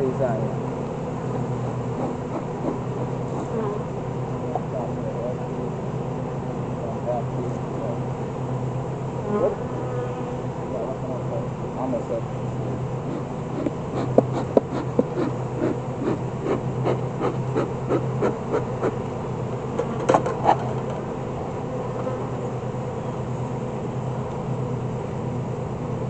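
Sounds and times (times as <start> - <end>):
honeybees buzzing: 0.0 - 26.0
wooden clicks and scrapes: 19.8 - 21.0.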